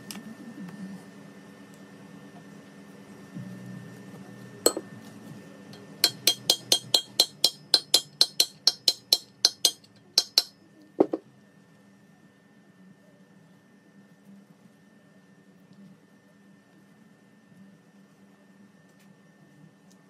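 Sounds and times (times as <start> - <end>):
hammer tapping on metal: 4.7 - 4.9, 5.8 - 11.2.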